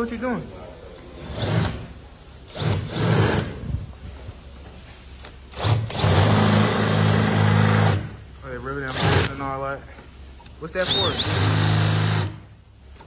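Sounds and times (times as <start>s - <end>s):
small power tool motor running: 10.9s - 12.3s.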